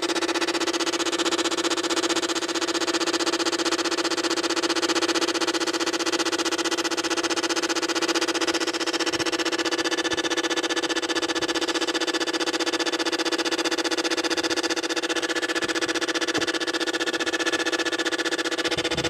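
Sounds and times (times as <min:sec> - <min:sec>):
throttle body electric buzzing: 0:08.4 - 0:19.0.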